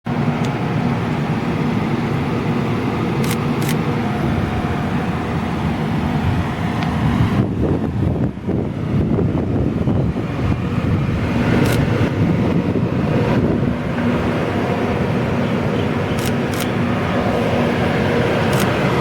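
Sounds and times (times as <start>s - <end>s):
road noise: 0.0s - 19.0s
vehicle engine hum: 0.0s - 19.0s
short clicks: 3.2s - 3.9s, 16.2s - 16.8s, 18.5s - 18.8s.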